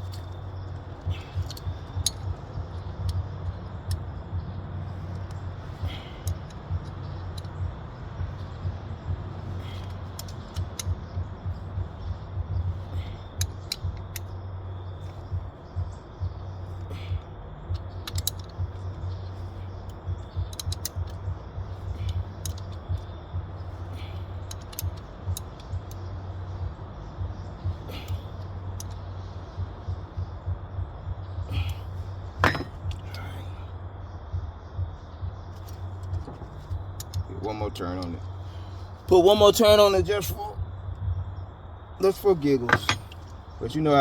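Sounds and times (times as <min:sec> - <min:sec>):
tools clinking: 0:00.0 - 0:12.0, 0:12.7 - 0:15.6, 0:16.6 - 0:26.3, 0:27.5 - 0:29.0, 0:31.5 - 0:33.5, 0:35.5 - 0:40.5, 0:42.0 - 0:43.4
ratchet wrench clicking: 0:00.0 - 0:15.9, 0:16.5 - 0:29.3, 0:35.5 - 0:37.3
low hum: 0:00.0 - 0:44.0.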